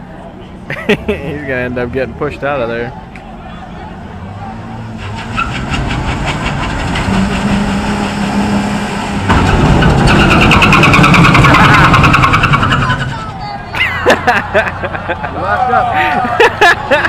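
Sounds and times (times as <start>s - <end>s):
pickup truck engine revving: 4.2s - 13.3s.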